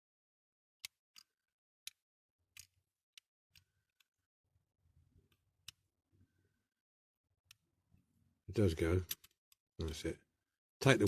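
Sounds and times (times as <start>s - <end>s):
toy car parts clicking: 0.8s - 4.1s.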